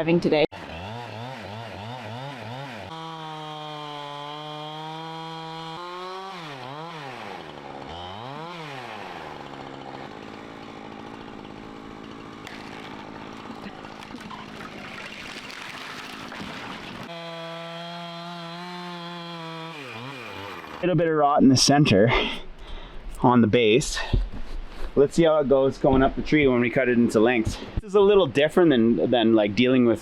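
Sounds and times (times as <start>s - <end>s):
chainsaw cutting tree trunk: 0.5s - 20.8s.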